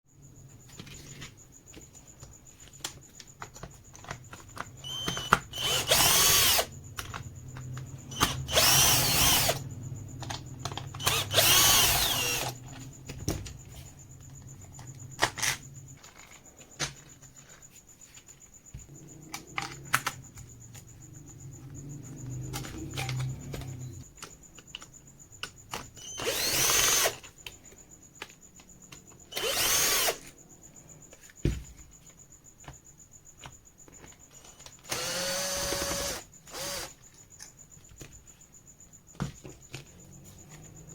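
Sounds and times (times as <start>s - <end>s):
electric drill whining: 4.8s - 7.2s, 8.0s - 12.8s, 26.0s - 27.3s, 29.3s - 30.3s, 34.8s - 37.0s.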